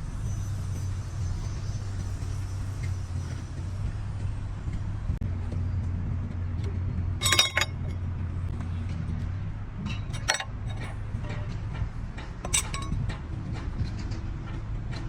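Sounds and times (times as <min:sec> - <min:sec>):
low machinery hum: 0:00.0 - 0:15.0
metal parts clinking: 0:07.2 - 0:08.0, 0:10.1 - 0:11.5, 0:12.4 - 0:13.0.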